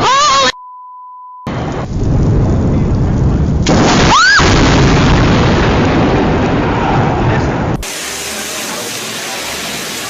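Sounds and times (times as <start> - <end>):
short steady beep: 0.6 - 1.5
thunder rumbling: 1.5 - 8.4
heavy rain: 1.5 - 10.0.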